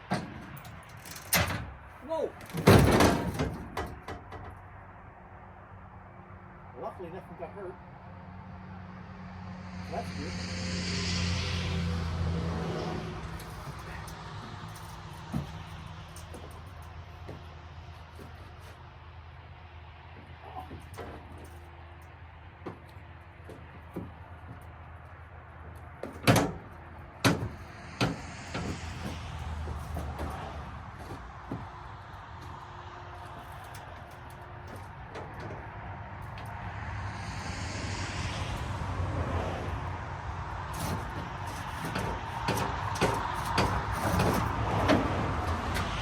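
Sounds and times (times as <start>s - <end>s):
irregular knocks and clanks: 2.4s - 4.7s, 13.2s - 18.8s, 22.6s - 24.8s, 25.6s - 35.7s, 40.7s - 46.0s
steady low rumble: 26.7s - 46.0s.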